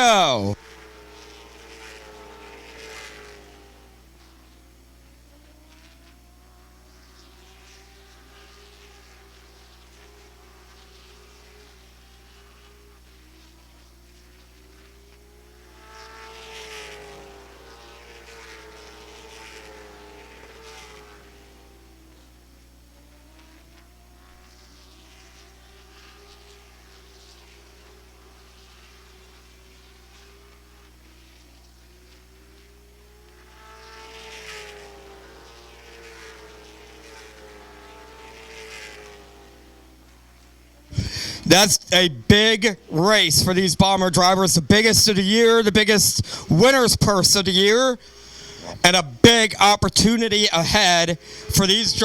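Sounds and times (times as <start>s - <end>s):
race cars passing: 0.0s - 4.5s, 14.7s - 22.2s, 32.1s - 52.0s.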